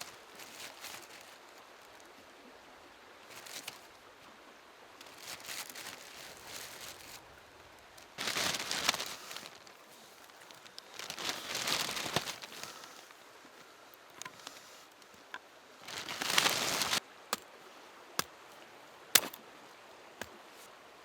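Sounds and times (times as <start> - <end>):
crunching and rustling: 0.0 - 1.4, 5.0 - 13.2, 15.3 - 17.4, 19.2 - 19.4
faint steady hiss: 0.0 - 21.0.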